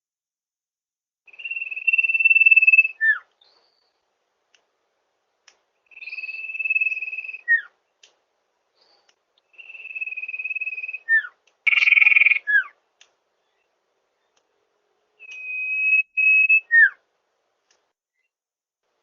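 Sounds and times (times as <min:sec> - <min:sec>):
bird whistling calls: 0:01.3 - 0:03.9, 0:05.9 - 0:07.7, 0:09.5 - 0:12.7, 0:15.2 - 0:17.0.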